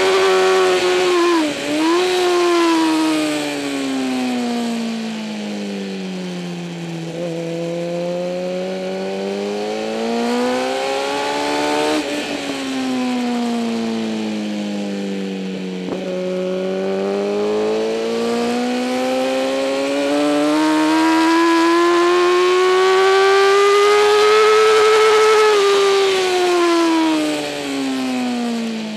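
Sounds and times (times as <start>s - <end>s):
motorcycle engine racing: 0.0s - 28.9s.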